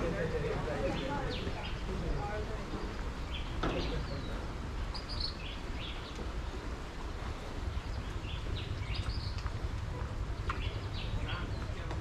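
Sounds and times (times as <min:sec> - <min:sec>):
steady low rumble: 0:00.0 - 0:12.0
bird chirps: 0:03.2 - 0:06.2.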